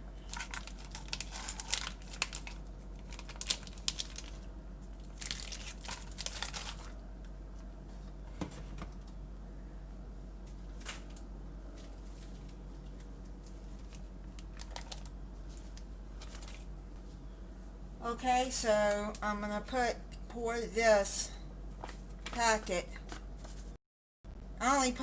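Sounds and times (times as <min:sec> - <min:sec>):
plastic wrapping crinkling and tearing: 0:00.2 - 0:07.0, 0:12.2 - 0:16.7.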